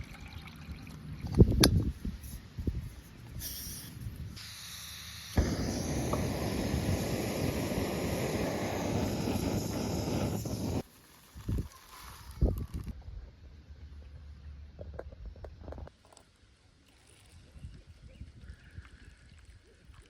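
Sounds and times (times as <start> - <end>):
bacon and eggs sizzling: 5.4 - 10.9.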